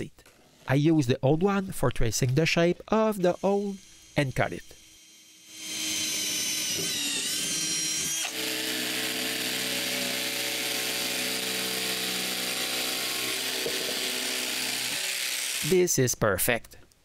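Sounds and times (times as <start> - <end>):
power tool cutting wood: 3.2 - 15.8.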